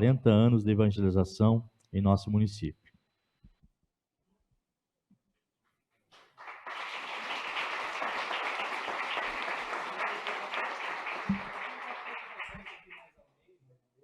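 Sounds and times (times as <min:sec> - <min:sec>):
audience applause: 0:06.2 - 0:13.1.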